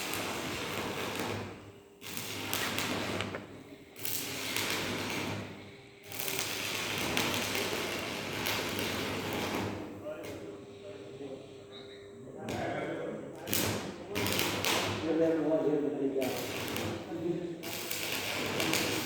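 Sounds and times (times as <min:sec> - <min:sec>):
arc welding crackling hiss: 0:00.0 - 0:11.6, 0:12.4 - 0:19.0.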